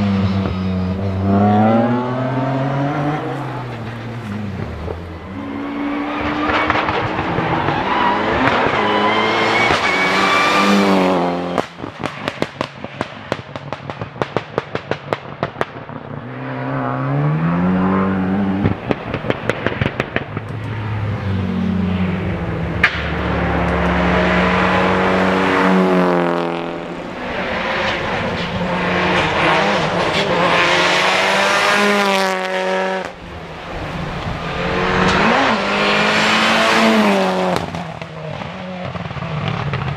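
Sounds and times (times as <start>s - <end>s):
exhaust pops and crackles: 6.5s - 7.8s, 11.5s - 16.1s, 18.6s - 20.7s, 37.5s - 39.9s
tyre squeal: 7.4s - 10.9s.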